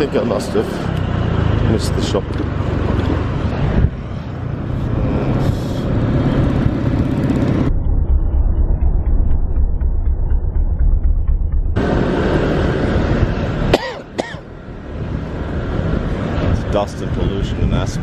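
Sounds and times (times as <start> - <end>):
motorbike engine rumble: 0.0 - 16.7.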